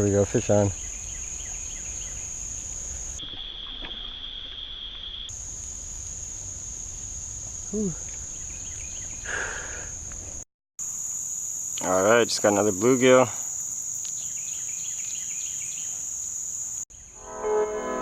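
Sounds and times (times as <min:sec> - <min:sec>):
high-pitched insect chorus: 0:00.0 - 0:18.0
low insect drone: 0:10.8 - 0:18.0.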